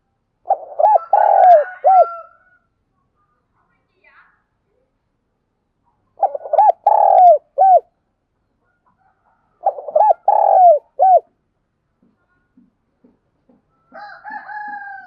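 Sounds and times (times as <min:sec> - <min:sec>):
dove cooing: 0:00.4 - 0:02.2, 0:06.2 - 0:07.9, 0:09.6 - 0:11.3.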